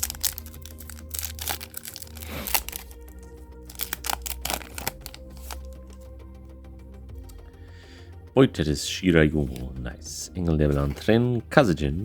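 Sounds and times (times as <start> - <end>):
foil pack tearing and crinkling: 0.0 - 5.9
background music: 0.0 - 12.0.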